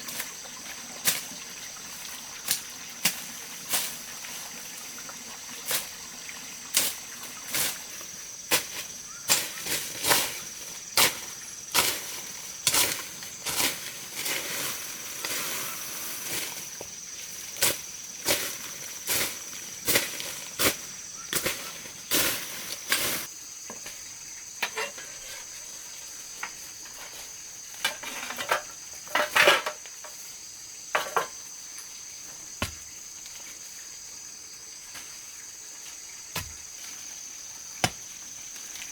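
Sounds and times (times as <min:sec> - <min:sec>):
hand tool striking wood: 0:08.5 - 0:10.4, 0:11.0 - 0:13.8, 0:19.9 - 0:21.7, 0:32.6 - 0:32.9, 0:36.3 - 0:36.7, 0:37.8 - 0:38.2.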